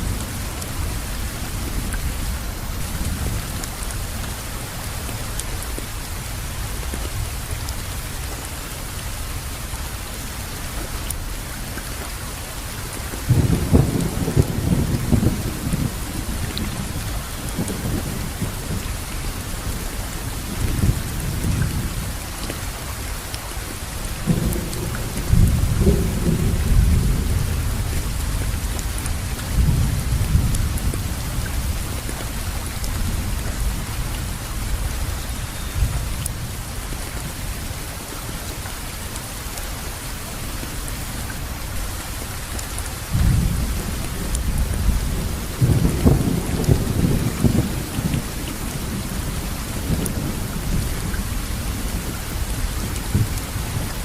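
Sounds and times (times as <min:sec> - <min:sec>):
steady rain falling: 0:00.0 - 0:54.0
thunder rumbling: 0:13.2 - 0:22.2, 0:24.0 - 0:36.5, 0:43.0 - 0:54.0.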